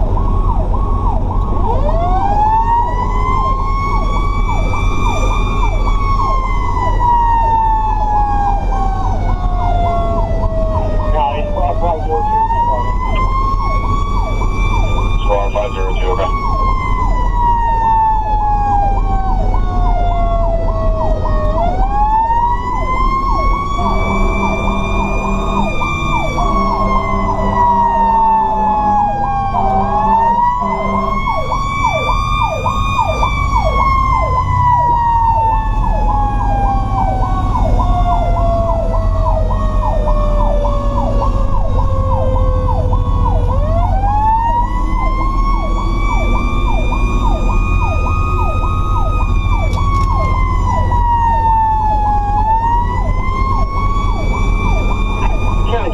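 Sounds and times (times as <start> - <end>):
truck engine rumbling: 0.0 - 55.9
electronic siren cycling fast: 0.5 - 55.9
air horn blasts: 23.8 - 25.7, 26.5 - 27.6, 29.7 - 31.2.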